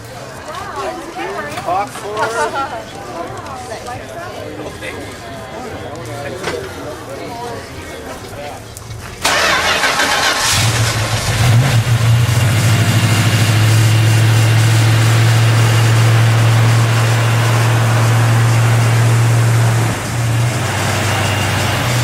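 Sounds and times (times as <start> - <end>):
car engine starter cranking: 9.2 - 12.2
car engine idling: 9.2 - 22.0
car engine revving: 9.2 - 22.0.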